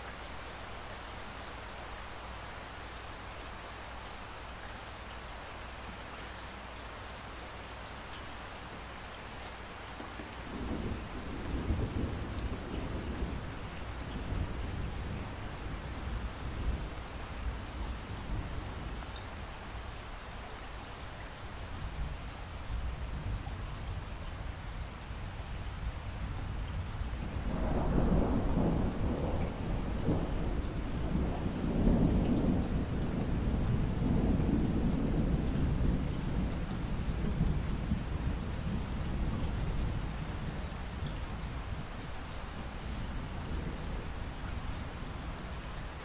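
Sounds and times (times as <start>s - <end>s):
steady rainfall: 0.0s - 46.0s
rolling thunder: 10.4s - 18.8s, 26.8s - 41.9s.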